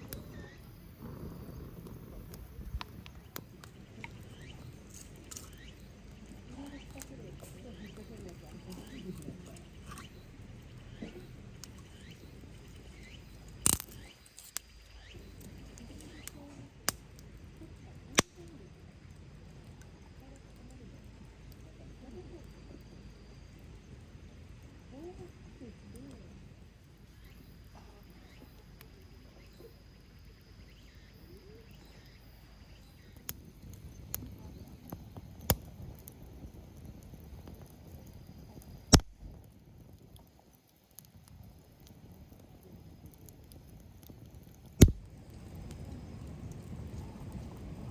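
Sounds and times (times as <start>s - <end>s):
faint high insect-like tone: 0.0s - 16.8s, 17.4s - 35.2s
campfire wood popping: 0.0s - 29.8s, 30.5s - 47.9s
faint birds chirping: 0.0s - 47.9s
sharp clicks and knocks: 44.8s - 45.0s.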